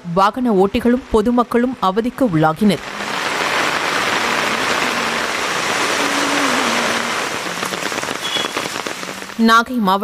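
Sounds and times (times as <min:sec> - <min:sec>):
heavy rain on road: 0:02.7 - 0:09.6.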